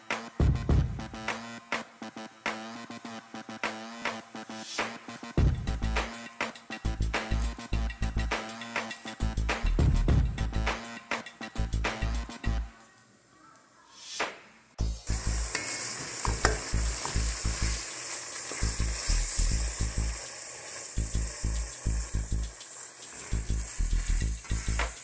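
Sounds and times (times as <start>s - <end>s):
meat sizzling in a pan: 15.0s - 25.0s.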